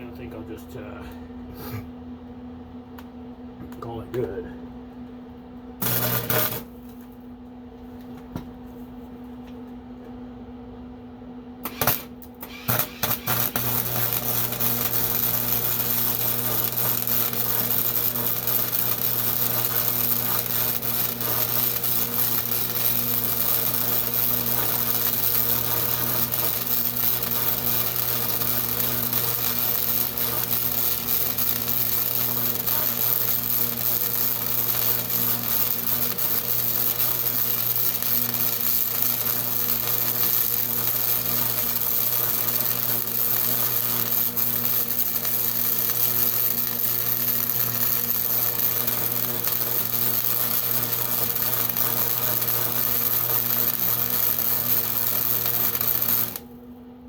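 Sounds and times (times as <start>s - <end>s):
low electrical hum: 0.0s - 57.0s
welding arc crackling: 5.8s - 7.0s, 11.6s - 56.6s.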